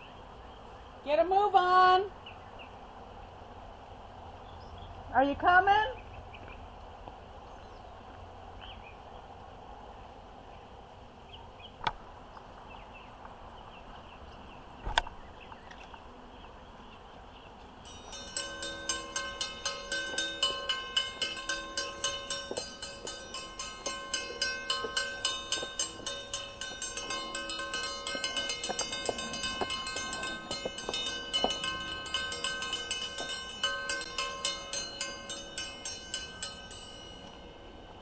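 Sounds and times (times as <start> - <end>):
metal bell rung rapidly: 17.9 - 38.0.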